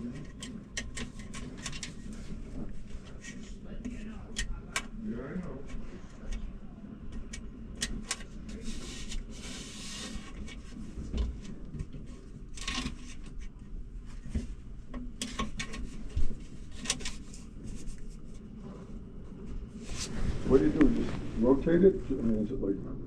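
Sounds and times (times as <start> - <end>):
clicks and light knocks: 0.1 - 2.0.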